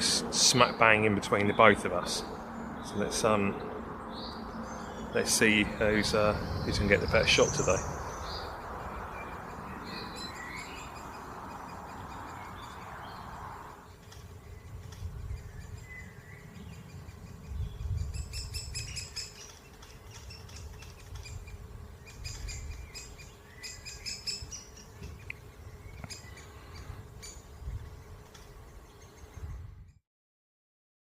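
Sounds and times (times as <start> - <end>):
woodpecker fledglings chirping: 0.0 - 30.0.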